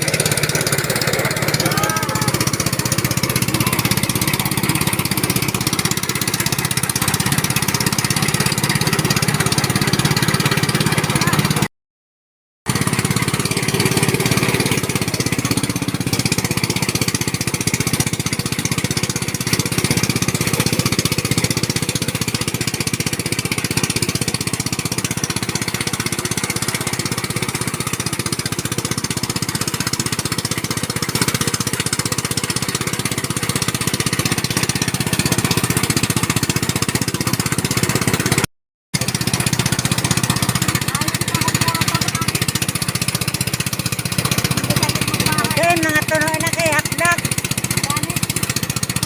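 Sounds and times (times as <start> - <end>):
small engine rattling: 0.0 - 11.7, 12.7 - 49.0.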